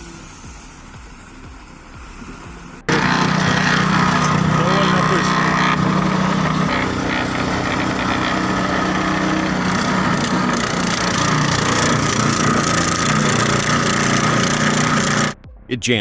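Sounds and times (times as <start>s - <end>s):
small engine under load: 2.9s - 15.4s
wood noise: 2.9s - 15.4s.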